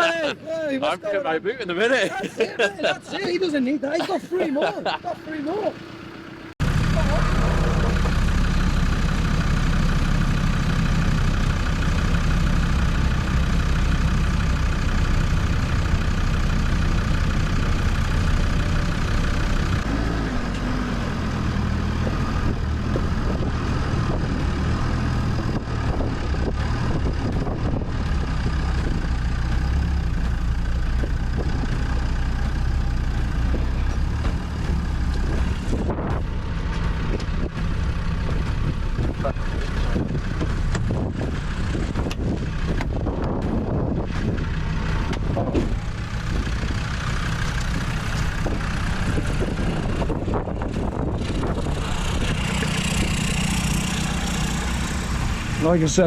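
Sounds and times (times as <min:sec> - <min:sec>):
truck engine running at low revs: 0:00.0 - 0:56.0.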